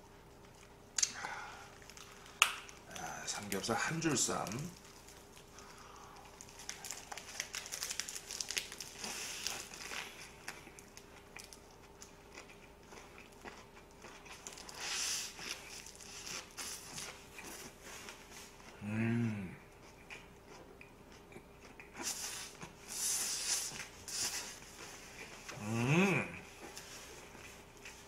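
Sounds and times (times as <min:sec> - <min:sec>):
crunchy chewing: 0:04.3 - 0:18.8
person humming: 0:18.8 - 0:19.6, 0:25.6 - 0:26.5.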